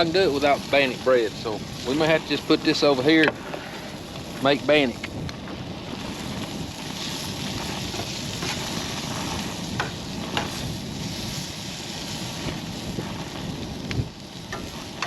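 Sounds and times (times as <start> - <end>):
food sizzling in a skillet: 0.0 - 15.0
wind on microphone: 0.0 - 15.0.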